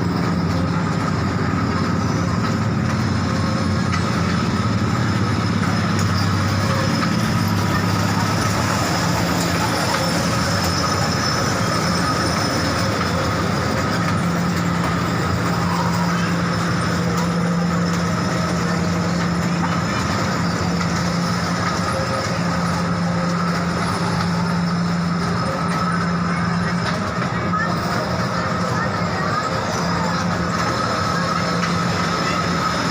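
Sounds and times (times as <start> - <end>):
train rumbling: 0.0 - 32.9.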